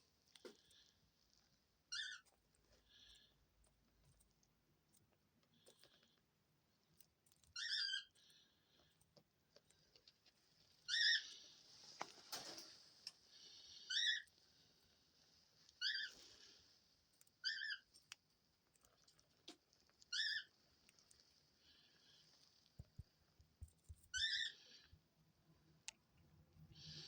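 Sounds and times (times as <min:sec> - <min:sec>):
bird chirping: 0:01.9 - 0:02.3, 0:07.5 - 0:08.1, 0:13.5 - 0:14.3, 0:17.4 - 0:17.9, 0:20.1 - 0:20.5, 0:24.1 - 0:24.8.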